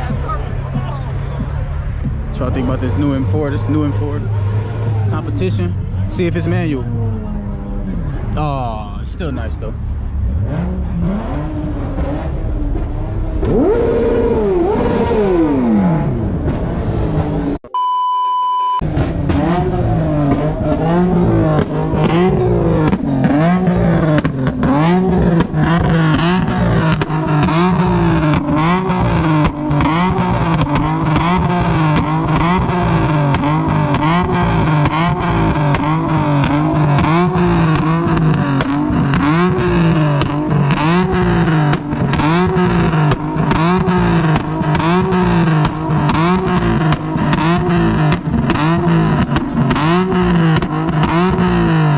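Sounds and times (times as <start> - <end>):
car engine revving with crackles: 0.0 - 17.7, 18.8 - 51.9.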